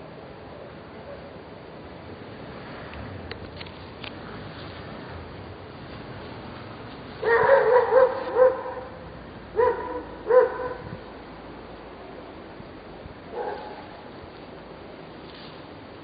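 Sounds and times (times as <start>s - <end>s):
dog barking: 7.2s - 9.0s, 9.6s - 10.9s, 13.3s - 13.9s.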